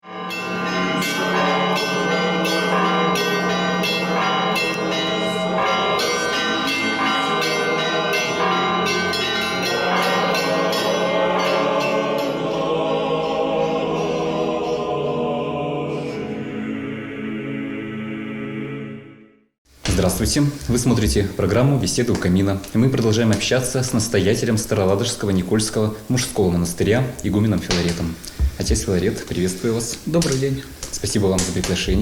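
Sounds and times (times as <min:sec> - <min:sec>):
church bells ringing: 0:00.0 - 0:14.9.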